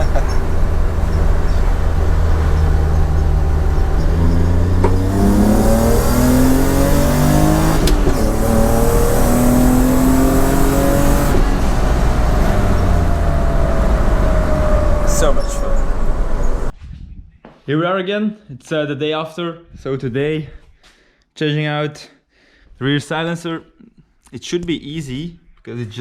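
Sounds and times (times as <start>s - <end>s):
car engine under full throttle: 0.0s - 16.7s.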